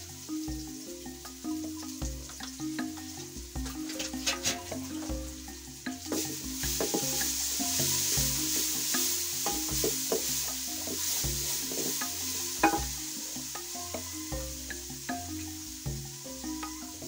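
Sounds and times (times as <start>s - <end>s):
onions sizzling in a pot: 0.0s - 17.0s
wooden spoon scraping and knocking pot: 3.3s - 5.3s, 5.9s - 14.7s.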